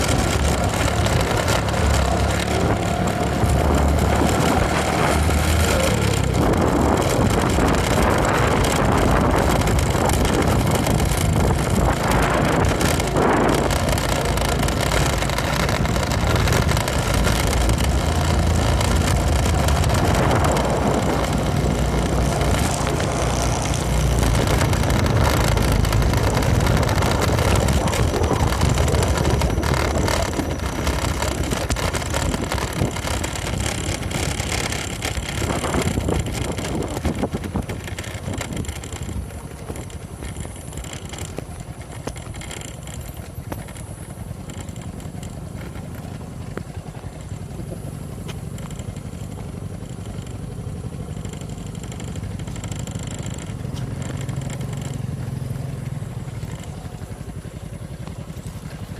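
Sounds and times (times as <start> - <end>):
motorcycle engine running: 0.0 - 58.9
wind noise on microphone: 0.0 - 58.9.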